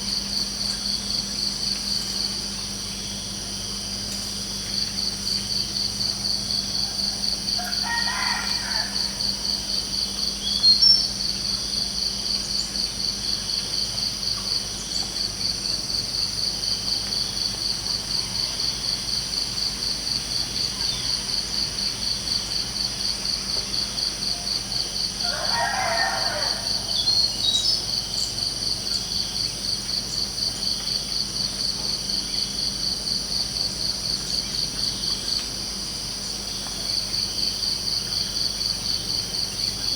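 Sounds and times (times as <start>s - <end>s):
crickets chirping: 0.0s - 39.9s
distant rooster crowing: 6.8s - 9.6s, 25.0s - 27.7s.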